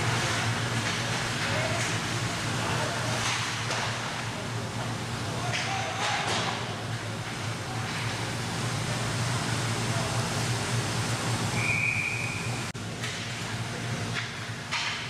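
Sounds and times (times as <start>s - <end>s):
ice rink background hum: 0.0s - 15.0s
referee's whistle: 11.6s - 12.6s.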